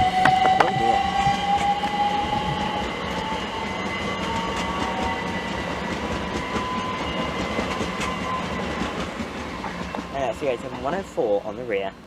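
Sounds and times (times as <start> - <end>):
traction motor whine: 0.0 - 8.7
train wheels rumbling: 0.0 - 12.0.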